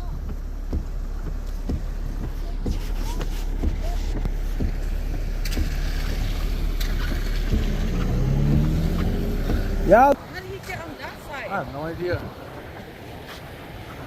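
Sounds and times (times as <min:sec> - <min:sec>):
vehicle idling rumble: 0:00.0 - 0:10.6.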